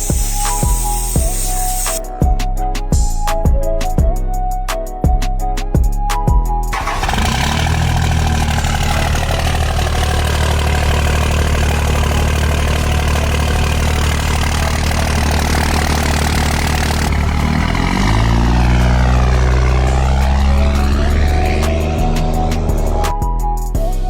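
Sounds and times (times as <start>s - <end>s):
diesel engine idling: 6.7s - 23.9s.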